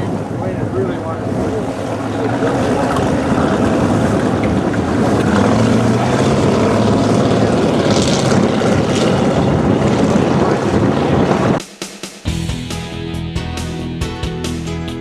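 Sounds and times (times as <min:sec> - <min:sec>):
boat engine running: 0:00.0 - 0:11.6
water noise: 0:00.0 - 0:11.6
wind: 0:00.0 - 0:11.8.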